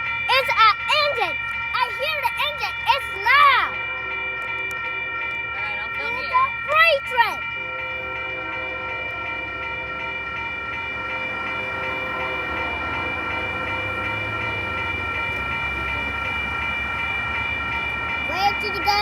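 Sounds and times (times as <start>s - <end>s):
railroad crossing bells ringing: 0.0s - 19.0s
locomotive rumble: 7.4s - 19.0s.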